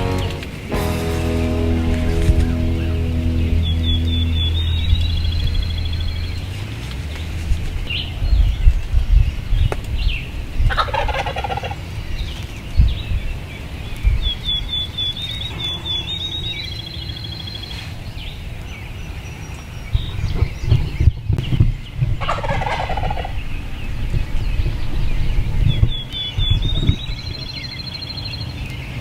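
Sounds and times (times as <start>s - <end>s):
low rumble: 0.0s - 9.5s
songbirds chirping and trilling: 0.0s - 29.0s
turkey gobbling: 10.8s - 11.8s, 22.2s - 23.3s.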